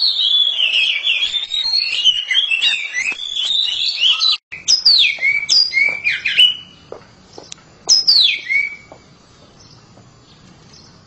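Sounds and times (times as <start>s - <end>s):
bird singing whistled phrases: 0.0s - 6.8s, 7.9s - 9.0s.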